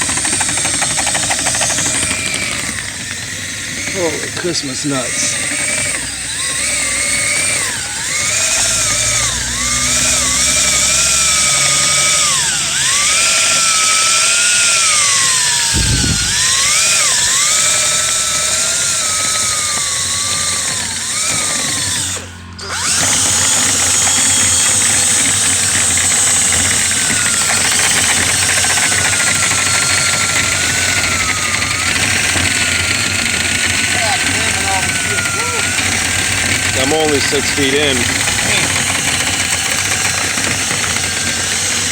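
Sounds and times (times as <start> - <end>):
power drill spinning rotary brush: 0.0 - 41.9
steady rushing noise: 15.7 - 17.3.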